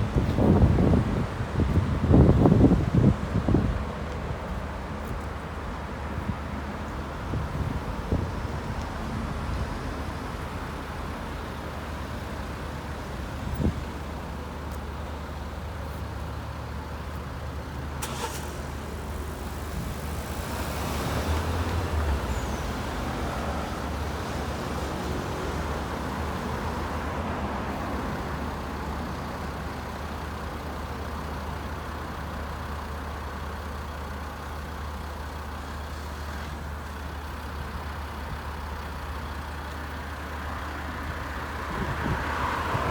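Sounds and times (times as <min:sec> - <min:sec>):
traffic engine rumble: 0:00.0 - 0:42.9
brief hiss: 0:18.0 - 0:18.8.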